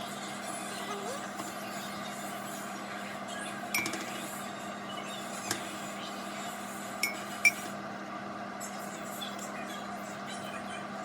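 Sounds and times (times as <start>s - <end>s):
dishes clinking: 3.8s - 4.2s, 7.0s - 7.7s.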